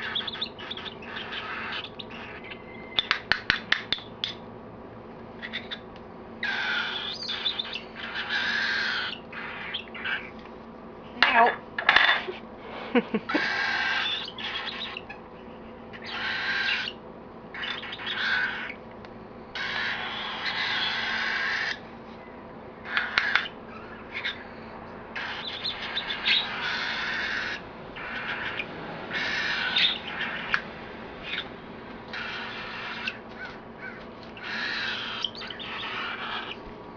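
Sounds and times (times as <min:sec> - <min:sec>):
baby bird raspy begging calls: 0:00.0 - 0:03.2, 0:05.4 - 0:05.8, 0:06.4 - 0:10.3, 0:13.3 - 0:15.2, 0:15.9 - 0:18.8, 0:19.5 - 0:21.8, 0:22.8 - 0:24.5, 0:25.2 - 0:30.6, 0:31.2 - 0:31.5, 0:32.1 - 0:36.6.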